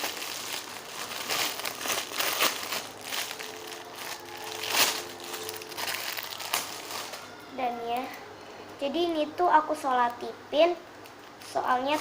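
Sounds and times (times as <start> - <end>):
plastic packaging crinkling: 0.0 - 8.1, 11.4 - 12.0.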